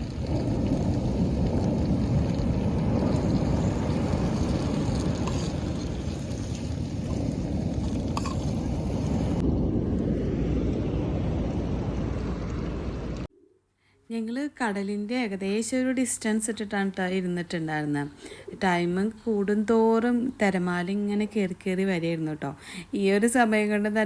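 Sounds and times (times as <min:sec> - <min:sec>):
sea waves washing: 0:00.0 - 0:13.3
wind buffeting microphone: 0:00.0 - 0:13.3.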